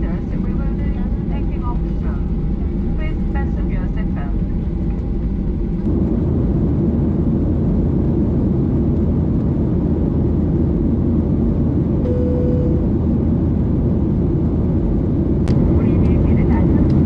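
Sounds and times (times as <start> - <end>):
airliner cabin rumble: 0.0 - 17.0
single steady tone: 12.0 - 12.9.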